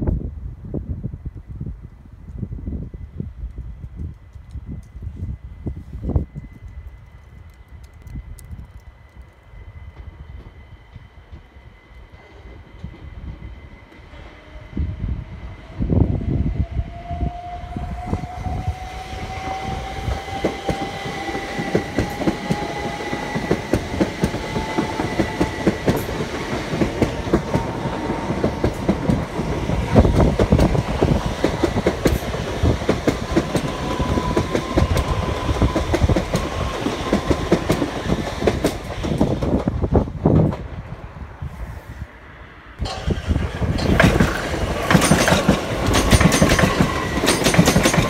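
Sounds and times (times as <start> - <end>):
electric train whine: 0.1 - 48.0
wheels clicking over rail joints: 42.8 - 48.0.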